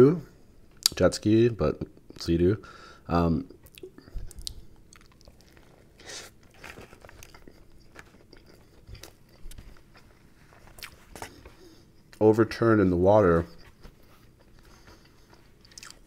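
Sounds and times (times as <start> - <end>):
chewing sandwich close up: 3.6 - 12.2, 13.4 - 16.0
small crunches: 4.3 - 11.6.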